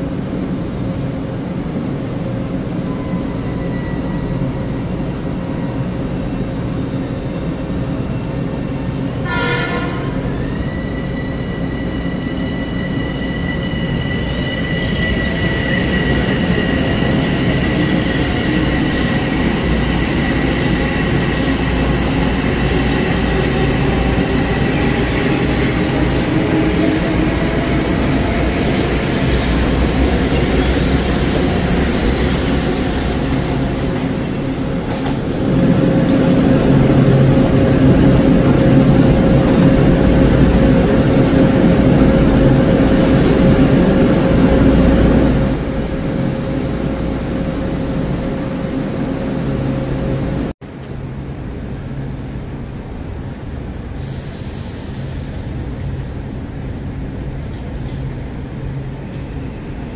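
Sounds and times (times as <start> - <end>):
train horn blast: 9.2 - 10.3
sharp high squeaks: 10.4 - 19.0.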